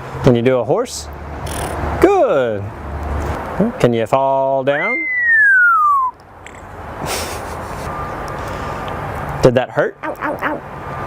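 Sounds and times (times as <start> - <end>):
parrot whistling falling note: 4.8 - 6.2.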